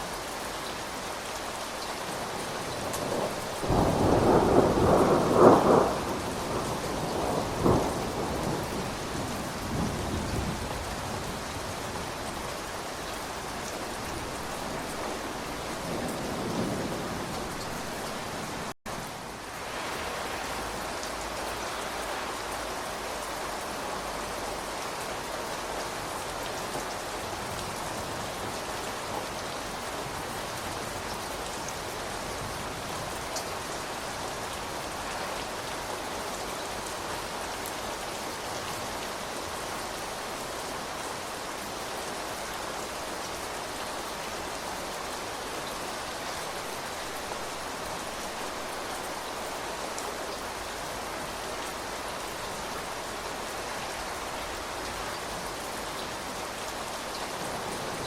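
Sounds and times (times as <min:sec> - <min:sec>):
steady rain: 0:00.0 - 0:58.0
thunderclap with rumble: 0:02.8 - 0:11.8.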